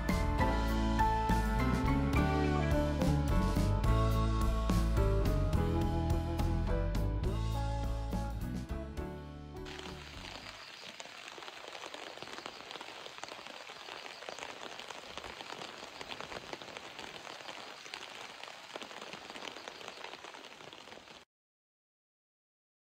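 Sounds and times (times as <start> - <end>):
steady rain falling: 9.6 - 21.2.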